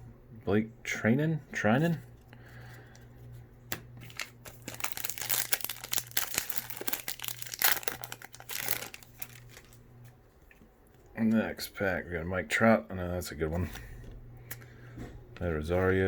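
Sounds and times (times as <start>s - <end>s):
plastic wrapper tearing and crinkling: 3.7s - 10.1s.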